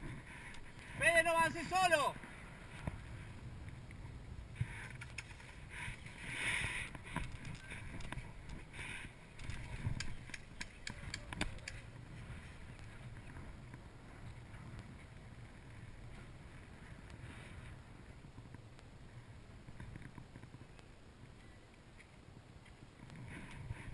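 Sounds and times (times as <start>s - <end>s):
wind rumble on camera: 2.2s - 23.9s
sharp clicks: 9.4s - 11.8s.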